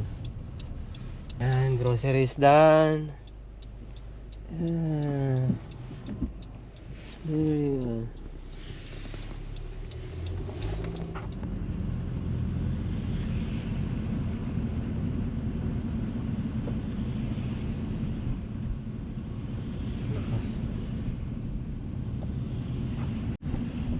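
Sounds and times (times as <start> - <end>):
faint clicks: 0.0 - 11.5
car road rumble inside cabin: 0.0 - 23.9.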